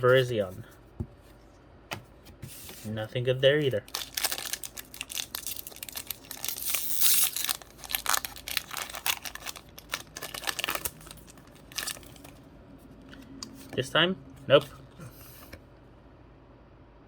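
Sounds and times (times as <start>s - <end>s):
foil wrapper crinkling and tearing: 3.8s - 12.4s.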